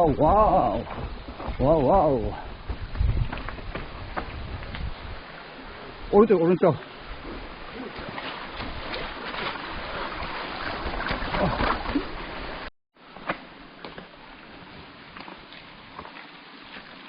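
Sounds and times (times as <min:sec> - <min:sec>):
bike rattling over roots: 0:00.0 - 0:04.9.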